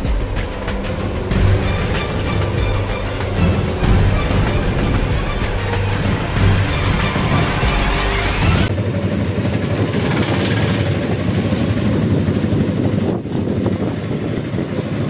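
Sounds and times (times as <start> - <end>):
street traffic: 0.0 - 11.5
vehicle engine rumbling: 0.0 - 15.0.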